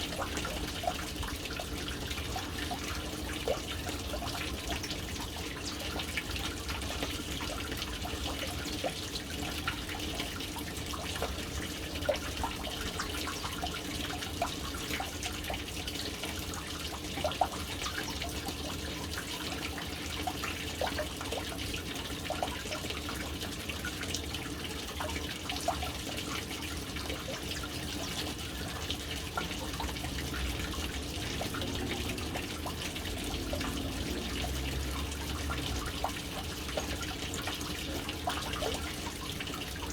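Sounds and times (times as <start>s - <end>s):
water drips: 0.0s - 39.9s
water pouring into a tank: 0.0s - 39.9s.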